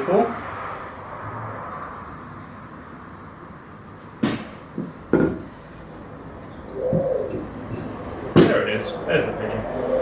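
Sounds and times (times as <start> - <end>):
wooden knocks: 4.2 - 5.5.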